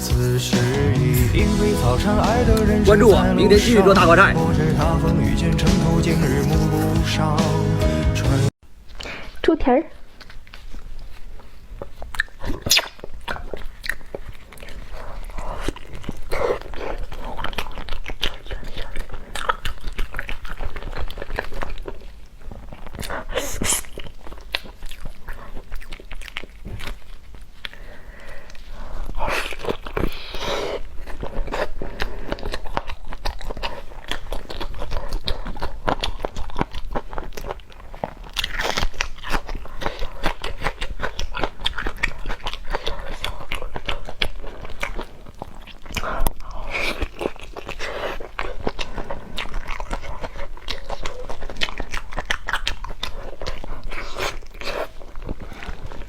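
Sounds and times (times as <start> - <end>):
person chewing and crunching: 0.0 - 7.8, 10.0 - 56.0.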